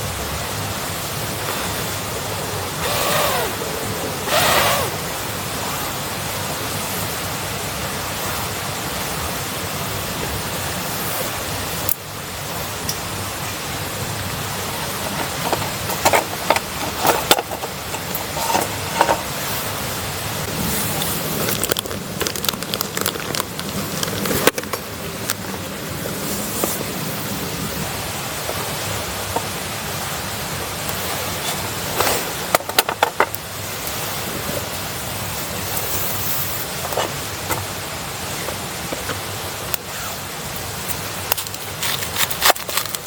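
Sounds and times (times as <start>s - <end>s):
steady rushing noise: 0.0s - 42.1s
campfire crackling: 11.8s - 30.1s, 38.3s - 43.0s.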